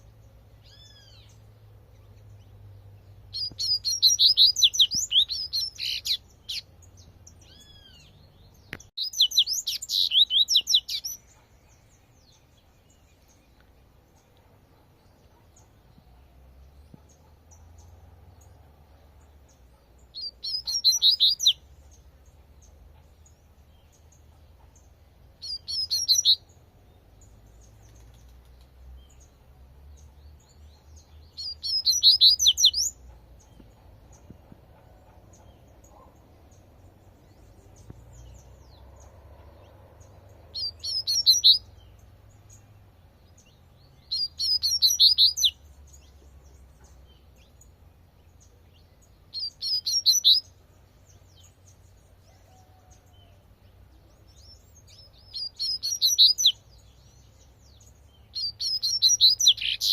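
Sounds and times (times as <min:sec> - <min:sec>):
faint low background rumble: 0:00.0 - 0:59.9
bird singing high rapid notes: 0:03.3 - 0:11.4, 0:20.2 - 0:21.7, 0:25.4 - 0:26.5, 0:31.4 - 0:33.6, 0:40.6 - 0:41.9, 0:44.0 - 0:45.6, 0:49.4 - 0:50.5, 0:54.4 - 0:56.6, 0:58.4 - 0:59.9.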